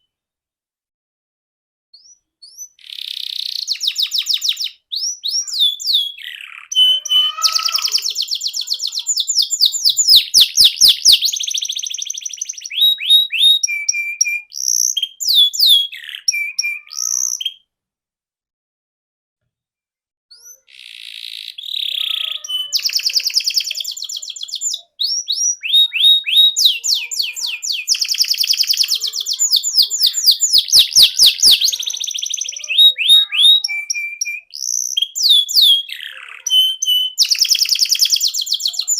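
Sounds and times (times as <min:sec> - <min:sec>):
canary singing: 0:02.0 - 0:17.7, 0:20.3 - 0:38.9.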